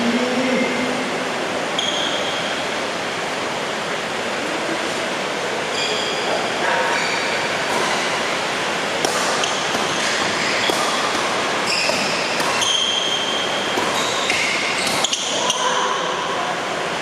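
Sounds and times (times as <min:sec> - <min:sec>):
sneakers squeaking on floor: 0:01.8 - 0:02.6, 0:05.7 - 0:08.3, 0:09.1 - 0:16.0
rackets hitting shuttlecock: 0:07.6 - 0:08.3, 0:09.0 - 0:15.7.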